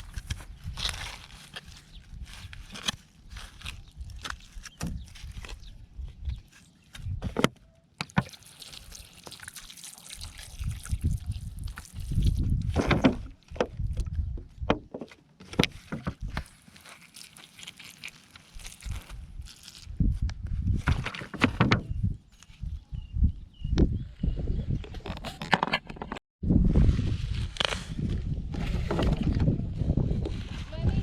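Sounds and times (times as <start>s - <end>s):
water sloshing and splashing: 8.0s - 13.3s, 15.8s - 19.1s.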